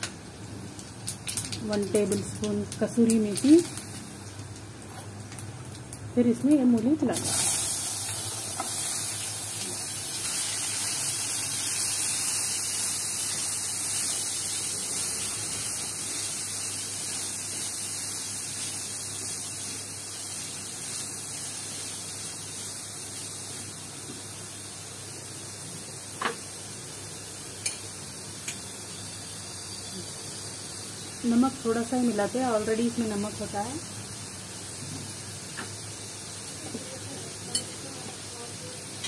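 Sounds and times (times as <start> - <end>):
radish sizzling in hot oil: 0.0 - 39.0.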